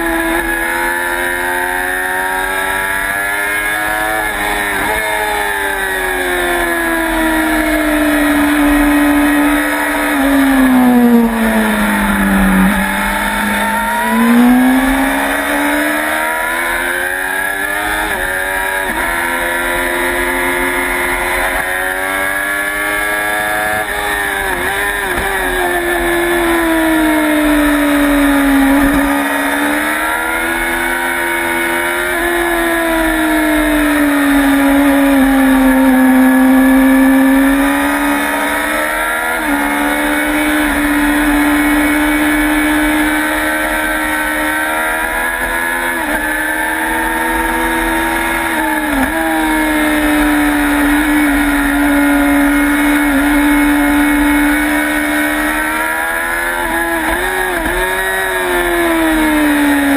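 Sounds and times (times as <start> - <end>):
motorcycle engine at high revs: 0.0 - 59.9.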